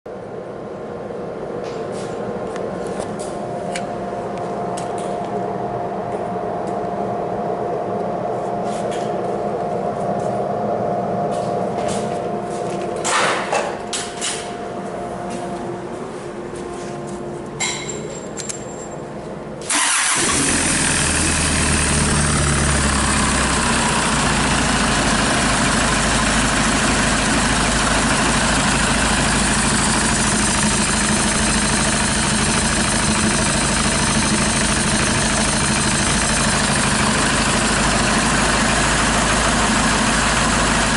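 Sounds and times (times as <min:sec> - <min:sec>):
steady hum: 0:00.1 - 0:19.7
diesel engine running: 0:19.6 - 0:40.9.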